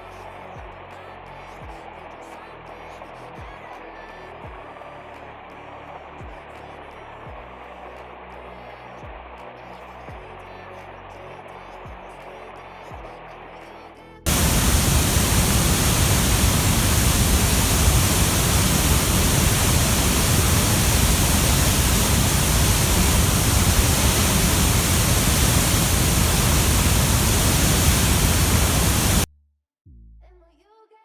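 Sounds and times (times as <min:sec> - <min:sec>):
low rumble: 0:14.3 - 0:29.3
static-like hiss: 0:14.3 - 0:29.3.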